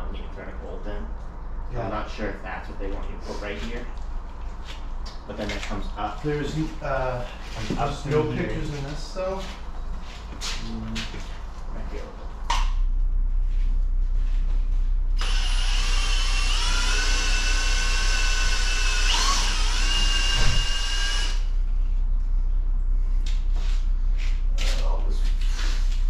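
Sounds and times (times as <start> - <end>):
steady low hum: 0.0 - 26.0
power drill whining: 15.2 - 21.5.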